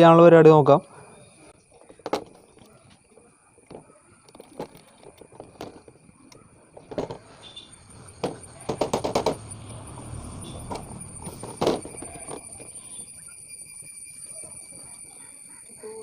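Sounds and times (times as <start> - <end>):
high-pitched whine: 7.3 - 15.8
tools knocking on metal: 8.2 - 9.5.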